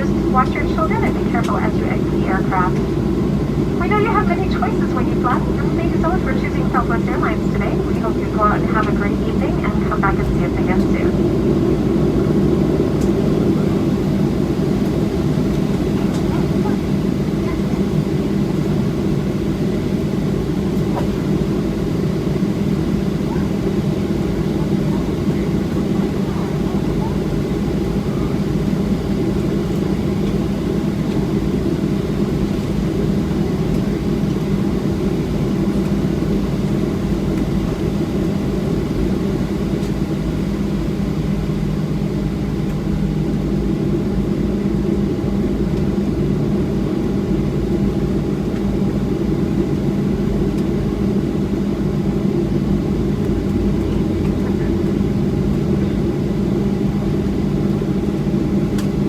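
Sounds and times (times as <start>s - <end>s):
steady low tones: 0.0s - 17.0s
airplane cabin hum: 0.0s - 59.0s.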